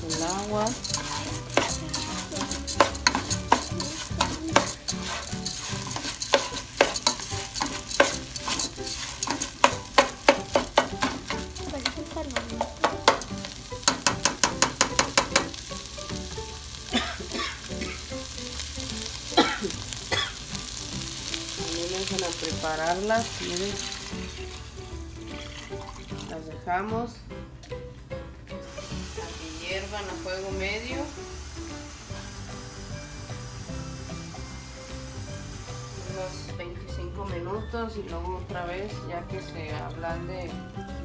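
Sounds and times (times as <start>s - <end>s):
spatula scraping pot: 0.0s - 15.6s
lentils sizzling in oil: 0.0s - 26.6s, 28.6s - 36.6s.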